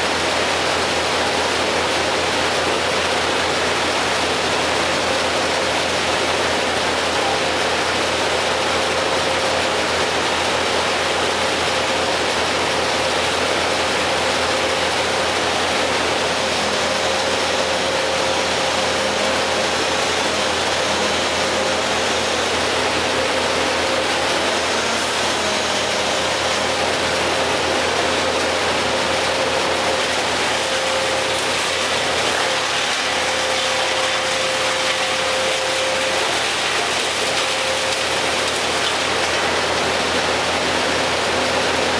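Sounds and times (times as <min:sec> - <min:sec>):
engine idling: 0:00.1 - 0:32.2.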